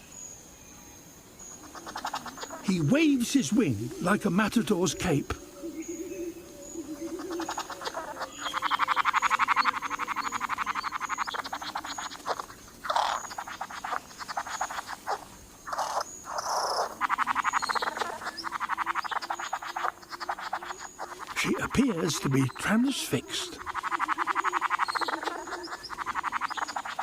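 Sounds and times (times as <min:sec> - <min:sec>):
bird rattling call: 0:01.6 - 0:03.4, 0:07.2 - 0:22.6, 0:23.5 - 0:27.0.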